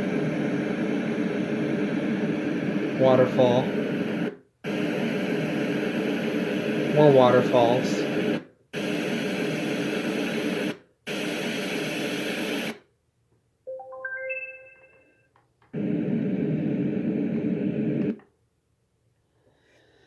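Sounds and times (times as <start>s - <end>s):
electronic beep notes: 13.7s - 15.2s.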